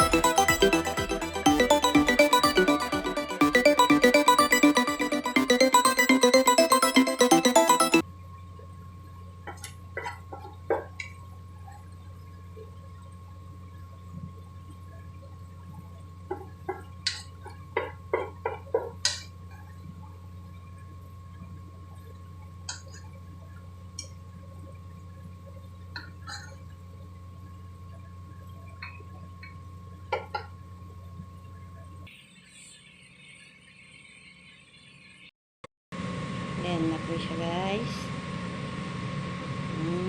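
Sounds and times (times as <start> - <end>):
background music: 0.0 - 8.0.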